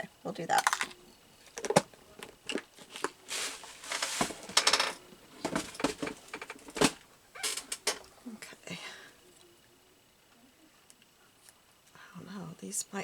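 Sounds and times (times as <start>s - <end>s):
brief rustles: 2.8s - 7.8s.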